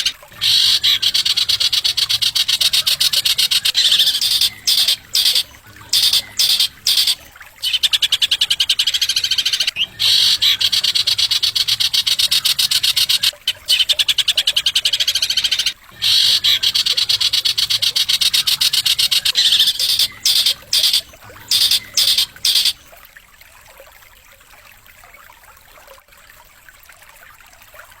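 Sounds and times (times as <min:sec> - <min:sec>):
songbird fast trills: 0:00.0 - 0:22.8.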